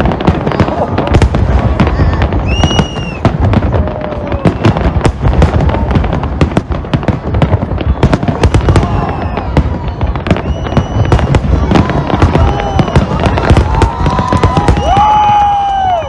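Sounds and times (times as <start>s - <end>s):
fireworks cracking and booming: 0.0s - 16.0s
short high whistle: 2.4s - 3.2s, 10.3s - 11.3s.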